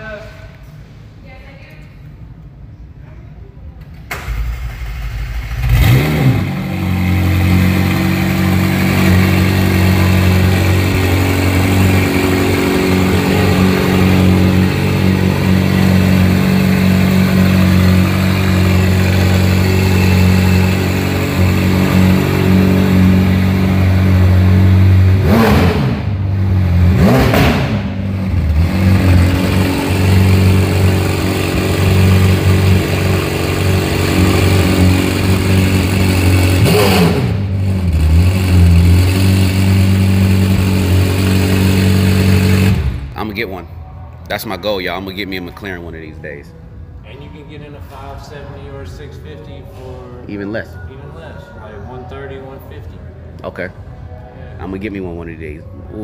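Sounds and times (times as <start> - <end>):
car engine starting and revving: 4.0 - 43.2.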